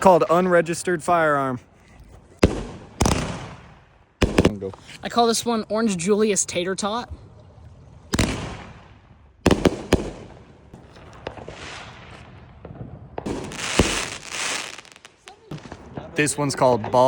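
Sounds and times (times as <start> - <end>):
firework bangs: 2.4 - 5.0, 8.1 - 17.0
firework crackling hiss: 9.5 - 12.2, 13.3 - 15.4.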